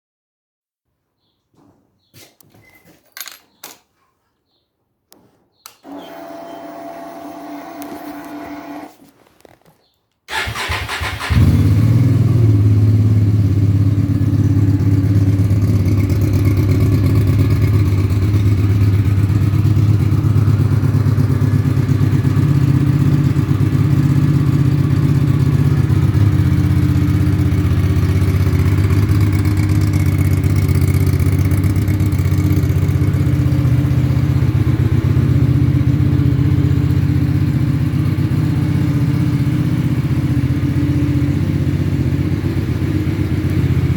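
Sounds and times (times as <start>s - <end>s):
engine cranking: 10.3s - 11.8s
motorcycle engine idling: 10.3s - 43.9s.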